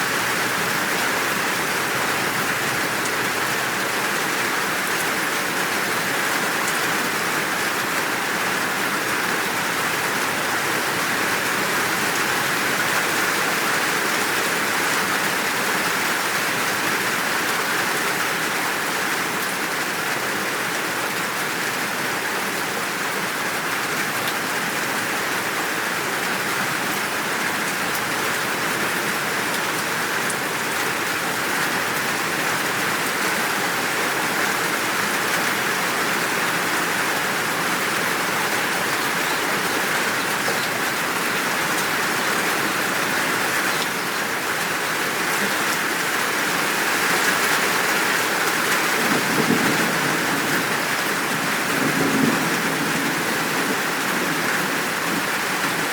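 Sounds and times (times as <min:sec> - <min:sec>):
heavy rain hissing: 0:27.1 - 0:55.9.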